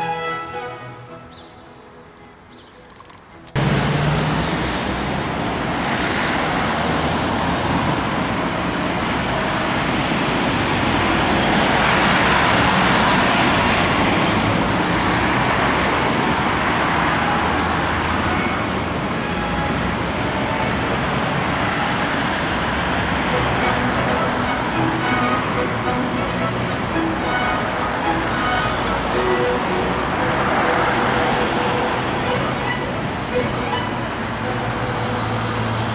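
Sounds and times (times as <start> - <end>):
road traffic noise: 0.0 - 35.9.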